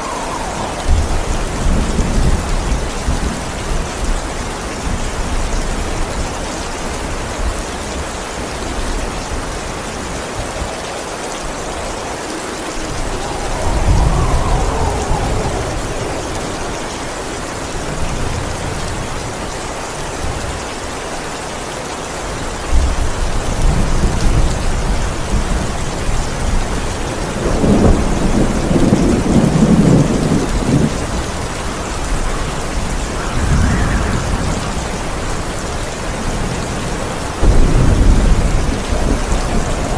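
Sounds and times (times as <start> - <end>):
thunder rumbling: 0.0 - 6.4, 11.5 - 19.6, 22.7 - 39.9
heavy rain: 0.0 - 39.9.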